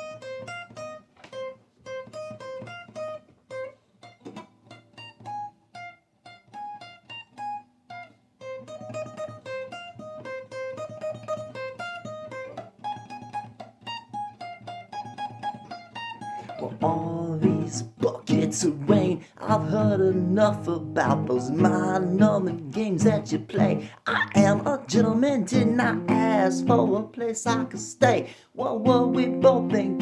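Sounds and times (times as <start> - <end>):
guitar picking single notes: 16.4 - 30.0.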